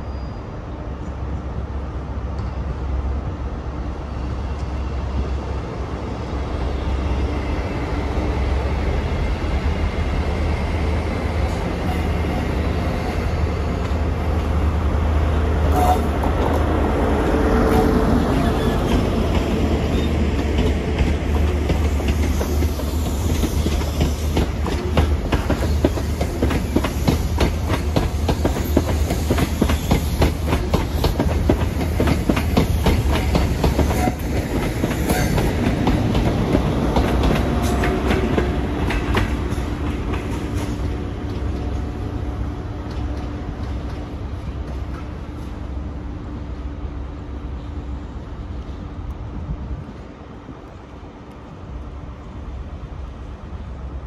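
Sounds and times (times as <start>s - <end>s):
train hum: 0.0s - 54.0s
train wheels clicking over rail joints: 17.7s - 42.1s, 42.8s - 45.4s.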